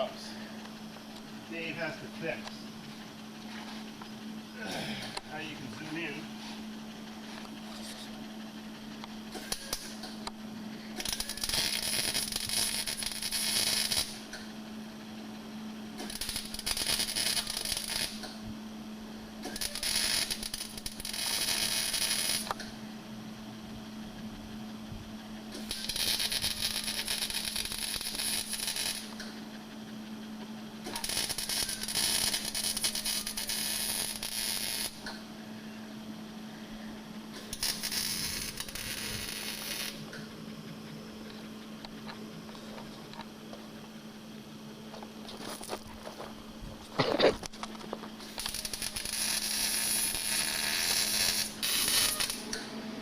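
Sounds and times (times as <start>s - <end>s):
steady low hum: 0.0s - 53.0s
welding arc crackling: 9.2s - 14.5s, 15.9s - 18.4s, 19.3s - 22.8s, 25.5s - 29.3s, 30.8s - 35.2s, 37.3s - 40.4s, 45.0s - 52.6s.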